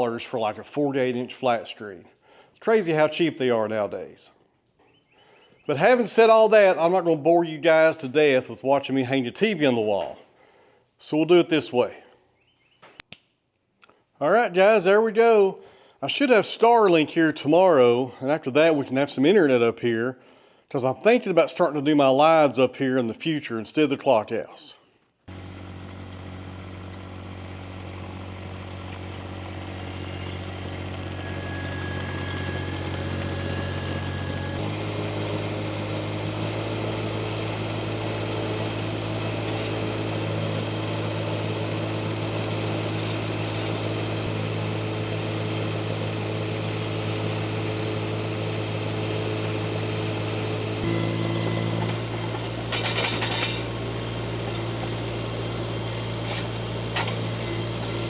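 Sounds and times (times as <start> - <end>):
engine running: 25.3 - 58.0
noisy clatter: 50.8 - 55.0.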